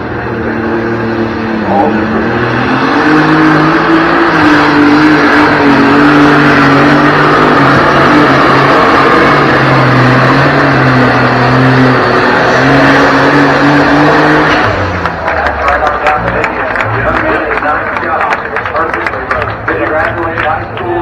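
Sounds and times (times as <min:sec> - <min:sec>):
tractor engine at high revs: 0:00.0 - 0:21.0.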